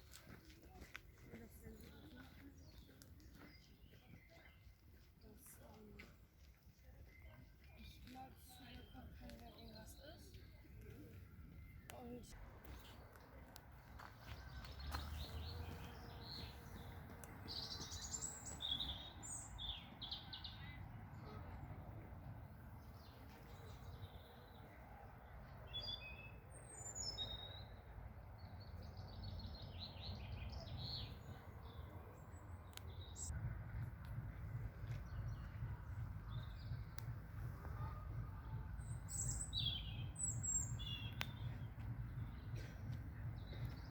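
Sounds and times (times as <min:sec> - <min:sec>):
small birds singing and chirping: 0:00.2 - 0:13.2, 0:14.0 - 0:33.4, 0:34.8 - 0:43.9
steady low rumble: 0:27.8 - 0:43.9.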